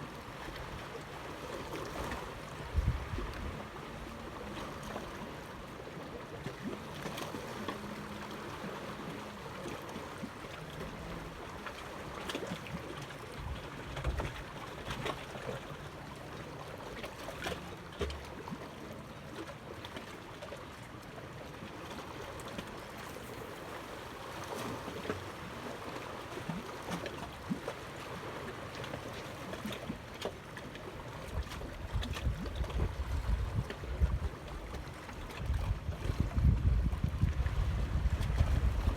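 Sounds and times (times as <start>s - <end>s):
water lapping: 0.0s - 38.9s
wind on microphone: 2.6s - 4.2s, 31.4s - 38.9s.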